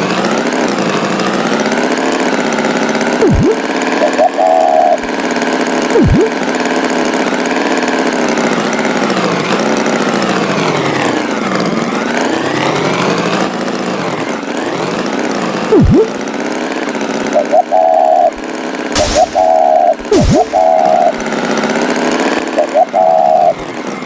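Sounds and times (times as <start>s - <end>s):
cartoon pitch sweep effect: 3.2s - 5.1s, 5.9s - 6.4s, 15.7s - 16.2s, 19.0s - 21.3s
tractor engine running: 15.1s - 22.4s.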